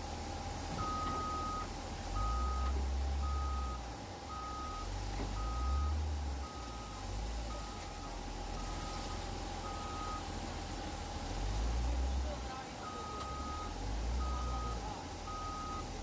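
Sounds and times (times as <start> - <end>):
truck engine rumble: 0.0 - 16.0
reversing alarm beeping: 0.7 - 10.3, 12.8 - 15.9.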